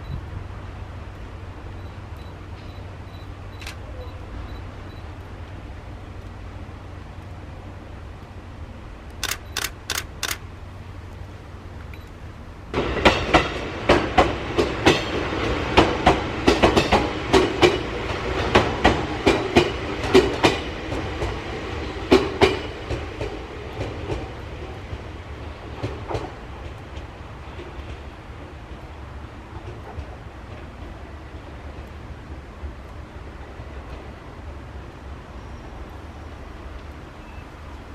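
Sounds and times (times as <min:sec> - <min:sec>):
quick sharp clicks: 0:09.1 - 0:10.4
train wheels clacking over rail joints: 0:12.8 - 0:28.5.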